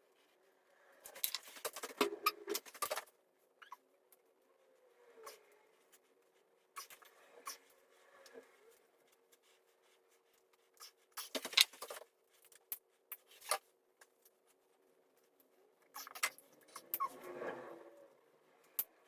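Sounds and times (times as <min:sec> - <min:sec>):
clicks and scrapes of tools: 0:01.0 - 0:03.1.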